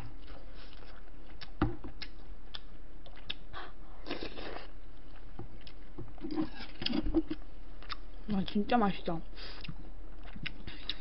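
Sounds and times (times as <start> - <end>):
person chewing meat: 0.0 - 7.0, 7.8 - 8.2, 9.5 - 11.0
wet mouth sounds: 9.6 - 11.0.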